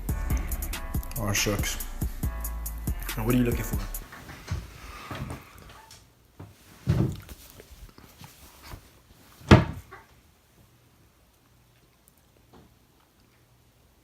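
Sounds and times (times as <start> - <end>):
cupboard doors opening and shutting: 3.6 - 7.3, 9.4 - 10.1.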